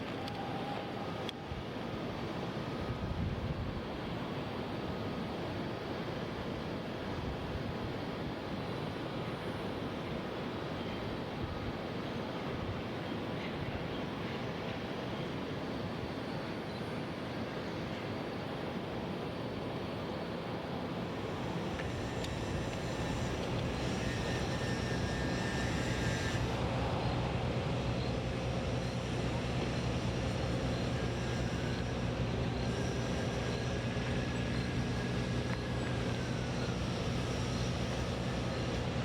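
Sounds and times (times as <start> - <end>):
engine drone: 21.1 - 39.0.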